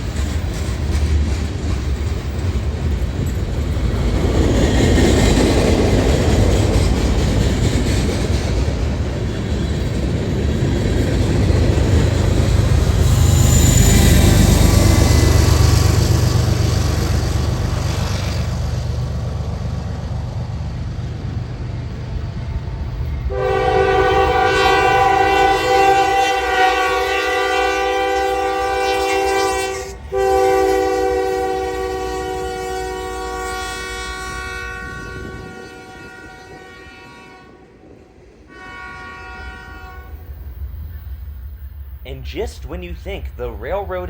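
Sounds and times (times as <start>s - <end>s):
passing train rumbling: 0.0s - 44.0s
locomotive air horn blasts: 23.3s - 37.7s, 38.5s - 40.3s.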